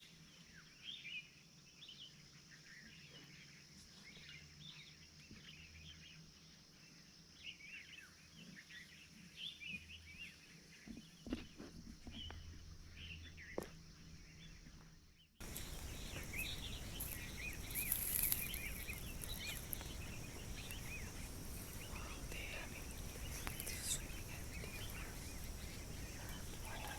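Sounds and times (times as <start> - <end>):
small birds chirping: 0.0 - 26.9
steady hiss: 15.4 - 26.9.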